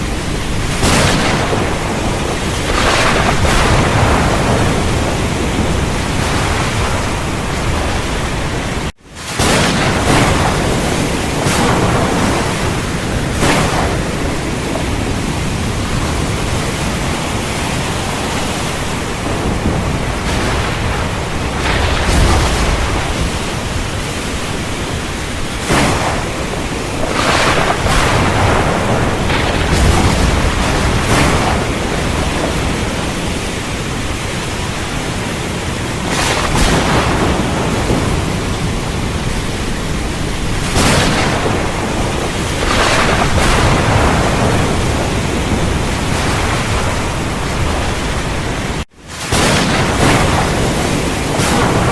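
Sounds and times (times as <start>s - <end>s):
heavy rain falling: 0.0s - 51.9s
thunder claps and rumbles: 0.0s - 51.9s.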